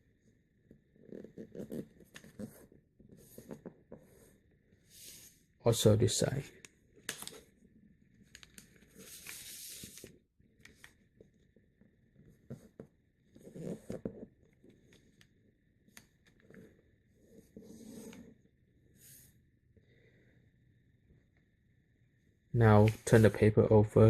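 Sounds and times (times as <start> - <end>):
paper rustling and sliding: 8.9 - 10.1, 22.8 - 23.4.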